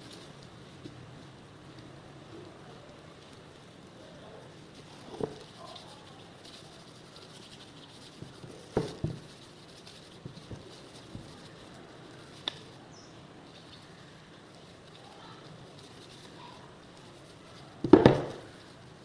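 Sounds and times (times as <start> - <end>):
light knocks and taps: 8.2 - 9.3.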